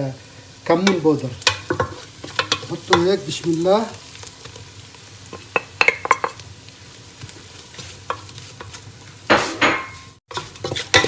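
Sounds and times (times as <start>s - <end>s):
onions sizzling in hot oil: 0.0s - 11.0s
spoon scraping a pot: 1.4s - 3.0s, 7.7s - 11.0s.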